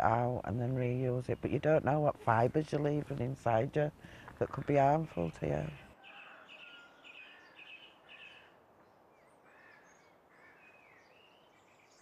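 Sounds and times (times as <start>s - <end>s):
bird chirping: 4.6s - 12.0s.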